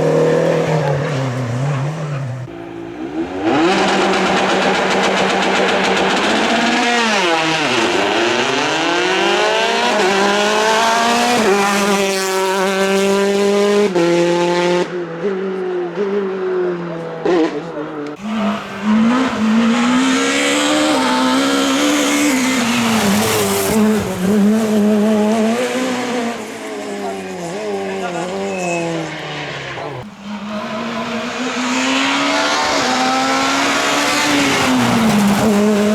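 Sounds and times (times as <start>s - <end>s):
rally car engine revving: 0.0s - 35.9s
tyre squeal: 28.3s - 32.8s.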